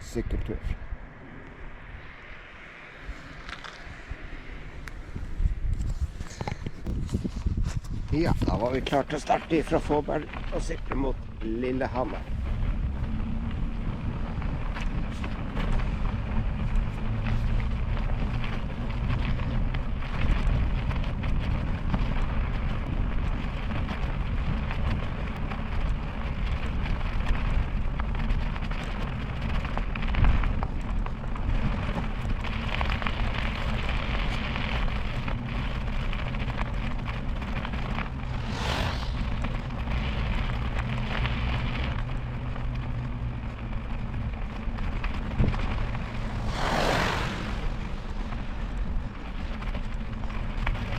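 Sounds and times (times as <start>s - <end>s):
wind rumble on microphone: 0.0s - 50.9s
bicycle tyre hiss on wet road: 38.0s - 42.0s, 45.7s - 49.8s
brief whoosh: 38.2s - 39.7s, 46.1s - 48.2s.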